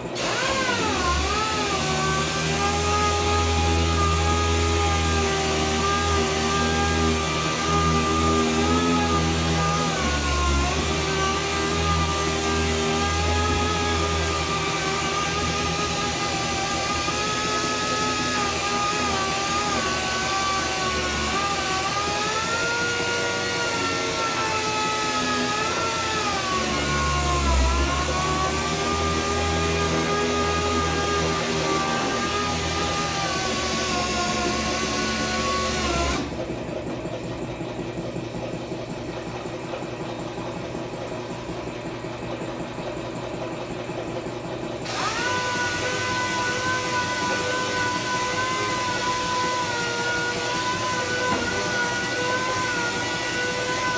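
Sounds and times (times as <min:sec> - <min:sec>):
power tool motor whine: 0:00.0 - 0:37.0, 0:44.8 - 0:53.9.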